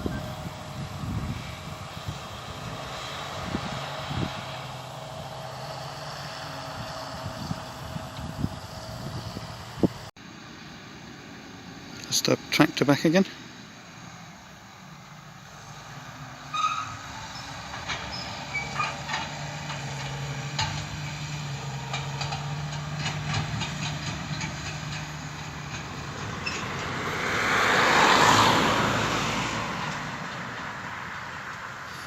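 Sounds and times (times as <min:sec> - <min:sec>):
tractor engine: 0:00.0 - 0:32.0
tractor clanking and rattling: 0:15.7 - 0:32.0.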